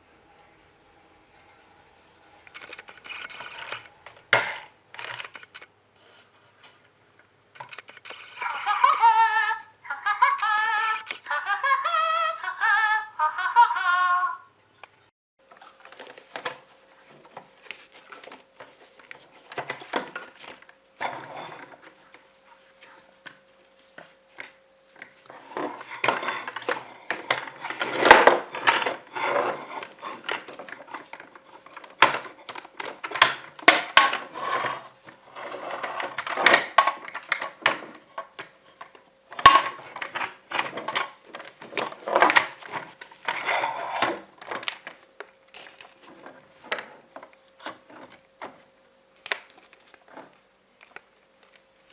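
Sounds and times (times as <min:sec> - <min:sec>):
faint steady hum: 0:00.0 - 0:51.9.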